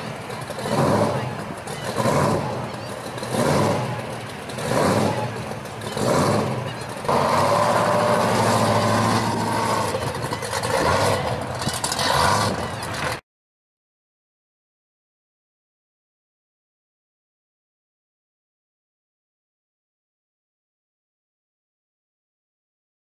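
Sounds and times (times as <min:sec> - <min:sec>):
car engine revving and pulling away: 0:00.0 - 0:13.2.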